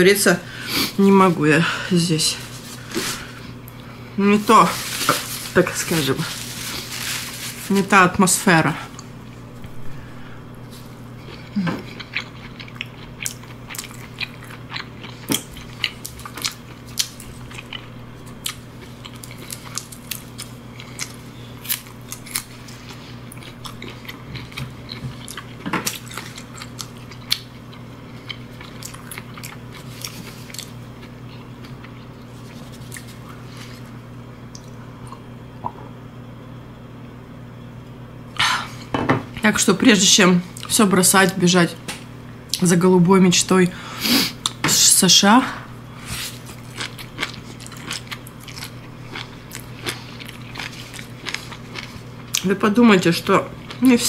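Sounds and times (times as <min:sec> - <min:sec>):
faint steady hum: 0:00.0 - 0:54.0
person chewing food: 0:10.8 - 0:35.3, 0:46.0 - 0:52.4.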